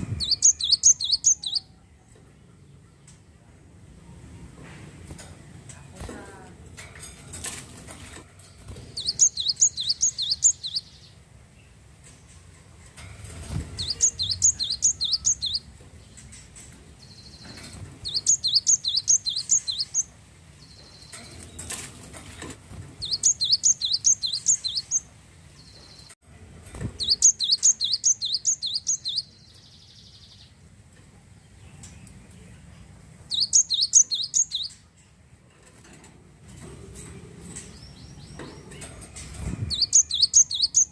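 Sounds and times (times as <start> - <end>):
bird singing rapid high notes: 0.2 - 1.8, 9.0 - 11.1, 13.8 - 15.7, 18.0 - 21.2, 23.0 - 25.1, 27.0 - 30.5, 33.3 - 34.8, 39.7 - 40.9.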